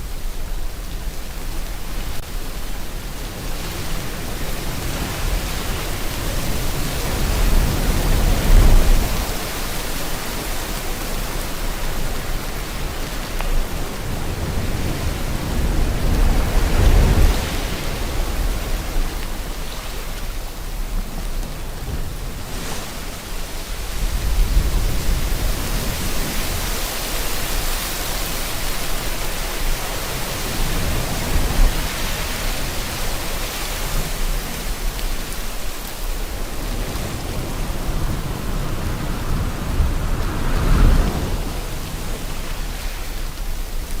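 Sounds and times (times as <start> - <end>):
rain hiss: 0.0 - 44.0
ocean waves: 0.3 - 44.0.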